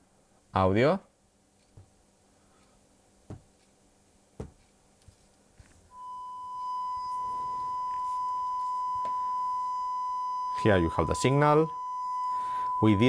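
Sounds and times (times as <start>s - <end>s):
steady sine test tone: 5.9s - 13.0s.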